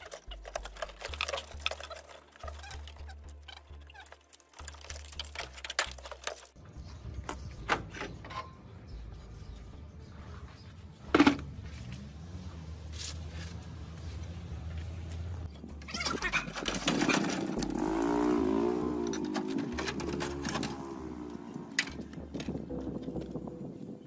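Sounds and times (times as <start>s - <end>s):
tools and metal parts clicking: 0.0s - 6.6s, 19.0s - 21.0s.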